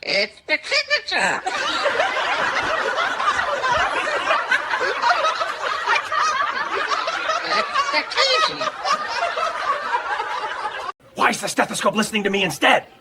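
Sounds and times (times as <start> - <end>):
people laughing: 1.2 - 11.0.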